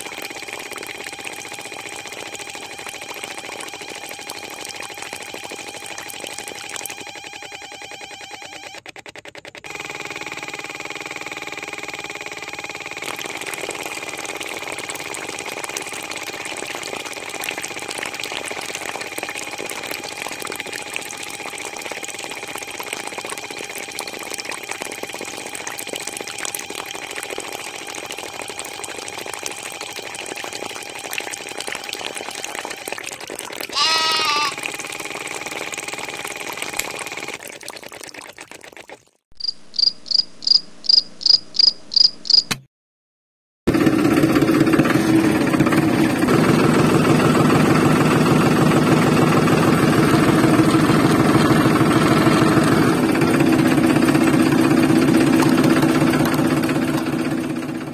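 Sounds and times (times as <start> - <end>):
water pump motor buzzing: 0.0 - 38.8, 43.7 - 57.9
short pitched call: 33.7 - 34.7.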